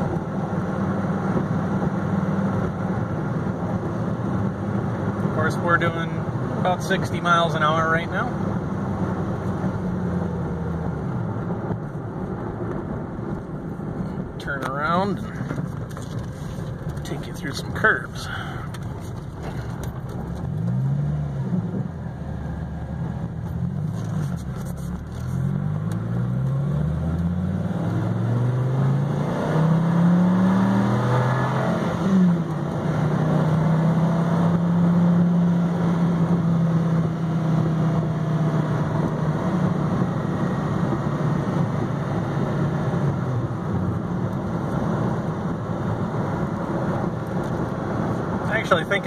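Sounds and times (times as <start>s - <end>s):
road noise: 0.0s - 49.0s
car engine revving through gears: 18.2s - 49.0s.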